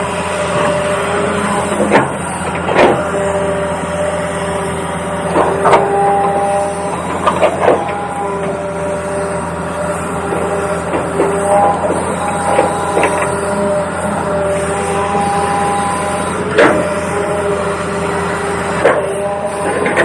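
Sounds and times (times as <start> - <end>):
small electric motors whining: 0.0 - 20.0
sharp clicks and knocks: 1.7 - 3.0, 16.5 - 16.9.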